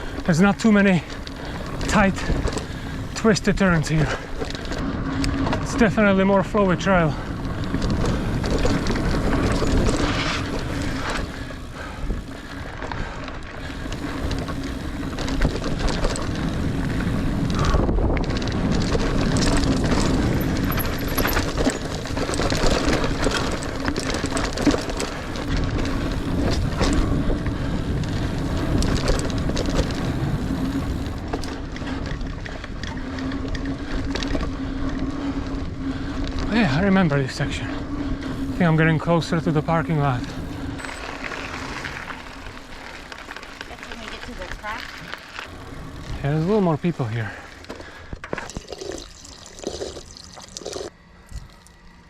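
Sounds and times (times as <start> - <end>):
bike chain and frame rattle: 0.0 - 52.0
bike tyre noise on dirt: 0.0 - 52.0
wind on microphone: 14.1 - 23.4
steady hum: 19.1 - 52.0.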